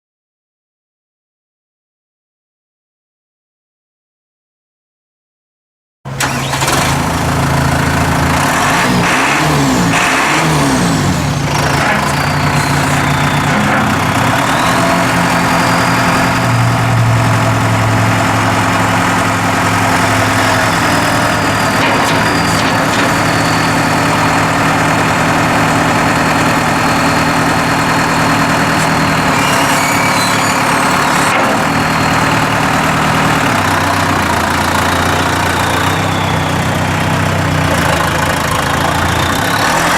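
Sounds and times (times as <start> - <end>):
tractor diesel engine running: 6.1 - 39.9
thin high whine: 14.5 - 24.5.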